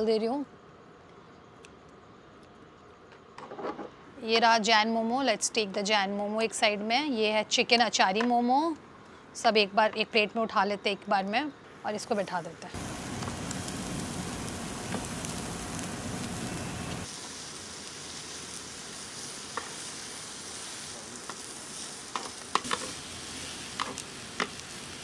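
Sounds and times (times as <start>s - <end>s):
mushrooms sizzling in oil: 12.0s - 25.0s.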